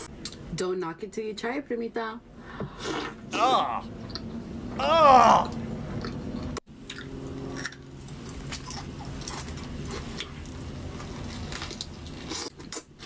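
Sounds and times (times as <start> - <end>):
woman chewing and biting food: 5.4 - 13.0
wet mouth clicks and crunches: 6.0 - 10.3.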